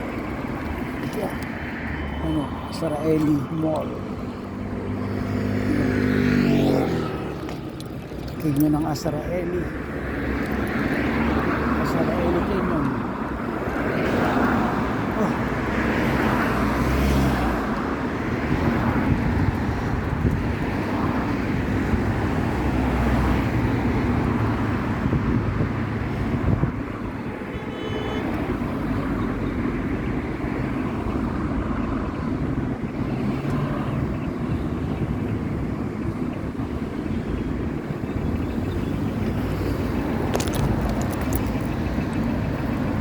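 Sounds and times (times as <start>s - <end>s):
road traffic noise: 0.0s - 43.0s.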